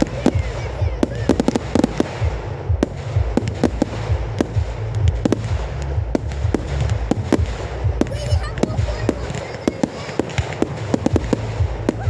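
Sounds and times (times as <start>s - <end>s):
low rumble: 0.0s - 9.4s, 10.6s - 12.0s
fireworks bangs and cracks: 0.0s - 12.0s.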